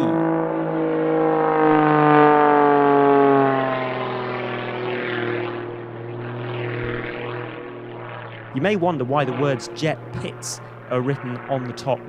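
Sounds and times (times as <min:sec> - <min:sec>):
biplane flying past: 0:00.0 - 0:12.0.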